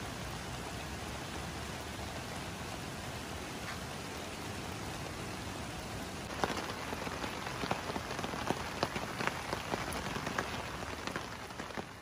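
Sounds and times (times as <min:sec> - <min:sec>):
light rain falling: 0:00.0 - 0:12.0
wood fire crackling and popping: 0:06.3 - 0:12.0.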